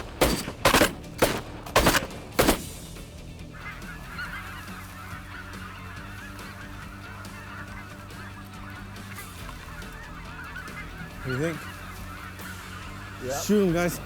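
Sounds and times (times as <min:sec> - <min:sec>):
shotgun shots: 0:00.0 - 0:03.0
geese honking: 0:00.0 - 0:14.0.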